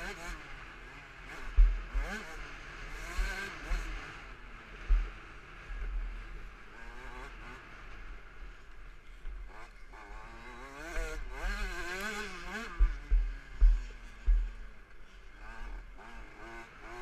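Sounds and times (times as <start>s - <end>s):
two-stroke motorbike engine revving: 0.0s - 17.0s.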